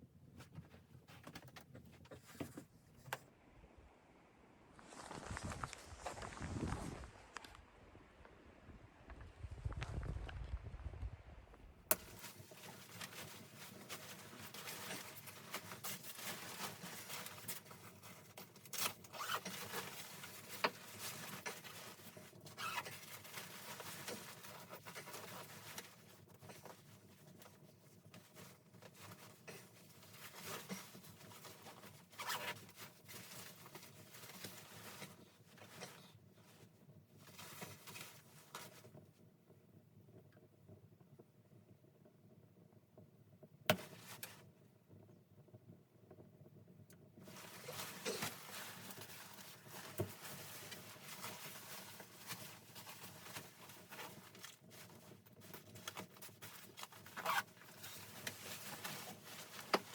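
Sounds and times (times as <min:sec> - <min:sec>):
close rustling and crackling: 0:00.0 - 0:03.3, 0:04.8 - 0:07.7, 0:11.6 - 0:39.4, 0:46.2 - 0:59.9
low rumble: 0:05.2 - 0:11.8.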